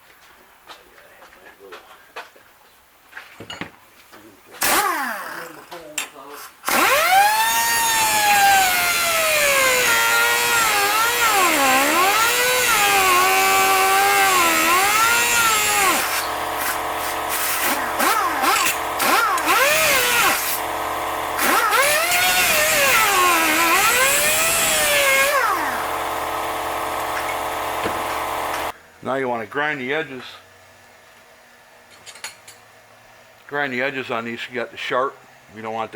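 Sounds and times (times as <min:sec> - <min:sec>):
angle grinder grinding: 0:06.7 - 0:28.7.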